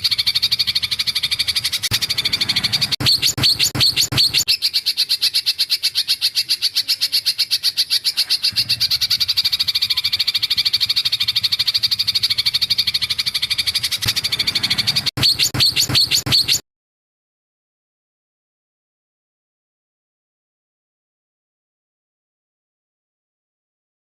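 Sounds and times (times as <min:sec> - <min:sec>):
songbird trilling: 0:00.0 - 0:16.6.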